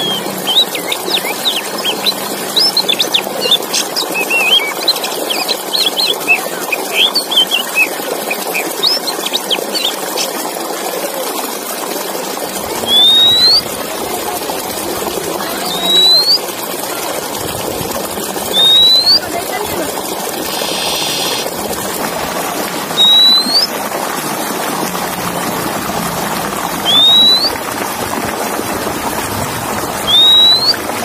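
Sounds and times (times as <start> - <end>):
bird chirps and twitters: 0.0 - 10.4, 12.8 - 13.8, 15.5 - 16.5, 18.5 - 19.2, 20.4 - 21.5, 23.0 - 23.7, 26.8 - 27.6, 30.1 - 30.8
rising bird whistles: 4.2 - 4.9, 12.8 - 13.7, 15.6 - 16.5, 18.5 - 19.2, 20.5 - 21.4, 23.0 - 23.7, 26.8 - 27.6, 30.1 - 30.8.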